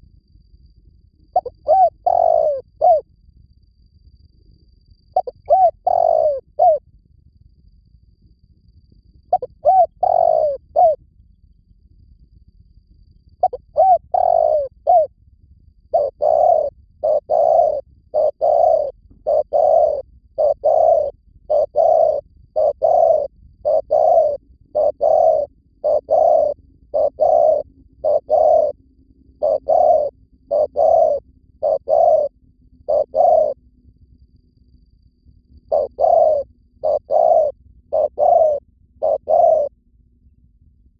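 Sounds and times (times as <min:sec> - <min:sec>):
dove cooing: 0:01.4 - 0:03.0, 0:05.2 - 0:06.8, 0:09.3 - 0:11.0, 0:13.4 - 0:15.1, 0:15.9 - 0:28.8, 0:29.4 - 0:33.6, 0:35.7 - 0:39.7.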